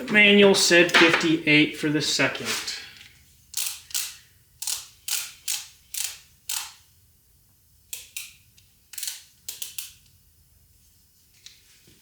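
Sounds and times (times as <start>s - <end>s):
torque wrench clicks: 3.5s - 6.8s, 7.9s - 10.1s.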